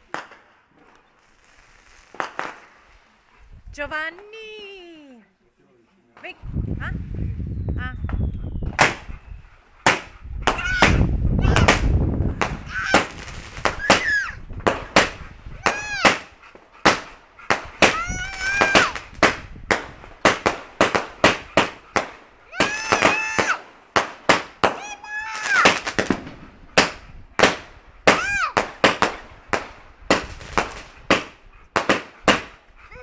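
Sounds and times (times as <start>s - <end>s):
fireworks bangs and cracks: 0.0s - 3.0s, 8.6s - 9.1s, 9.8s - 32.6s.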